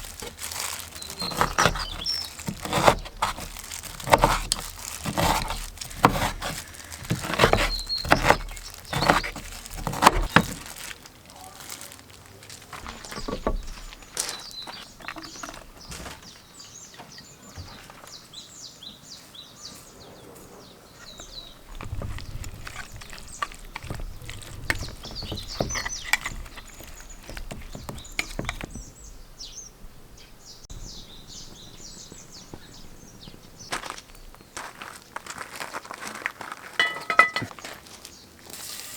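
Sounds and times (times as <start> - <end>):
knocks and handling clatter: 0.0 - 16.4, 21.2 - 29.0, 36.8 - 37.8
small birds chirping: 0.0 - 35.2.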